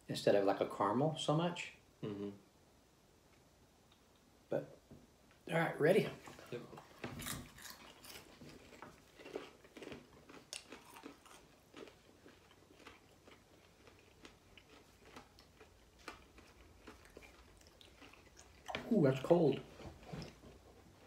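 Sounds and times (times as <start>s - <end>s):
crunchy snack being chewed: 7.2s - 19.0s.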